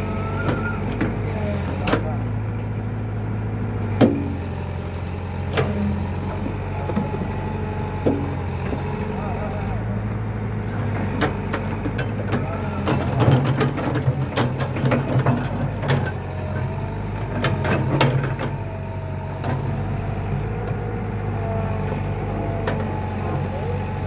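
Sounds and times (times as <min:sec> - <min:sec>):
diesel engine idling: 0:00.0 - 0:24.0
metallic clanks and clicks: 0:11.2 - 0:16.2.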